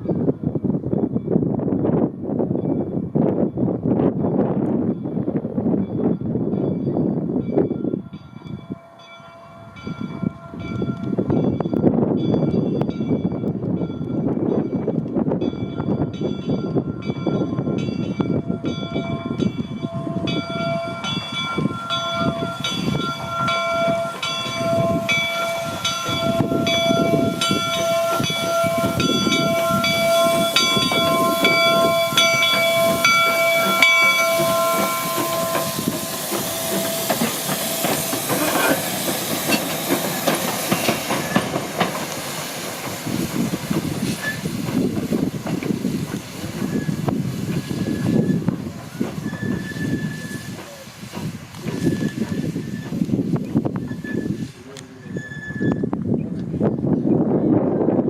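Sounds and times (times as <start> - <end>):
locomotive bell ringing: 2.5 - 53.0
steam whistle: 19.9 - 39.1, 46.6 - 50.6
steam hissing: 20.1 - 55.8.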